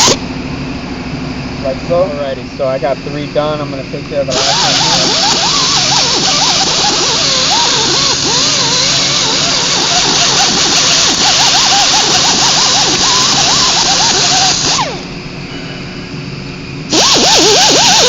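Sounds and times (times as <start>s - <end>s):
power sander grinding steel: 0.0s - 0.2s, 4.3s - 15.1s, 16.9s - 18.0s.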